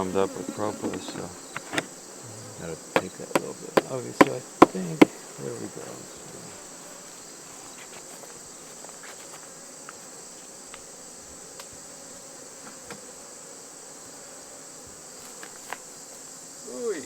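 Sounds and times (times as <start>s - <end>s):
high-pitched insect chorus: 0.0s - 17.0s
honeybees buzzing: 0.0s - 17.0s
wooden hive parts clicking: 0.4s - 2.0s, 2.8s - 5.4s.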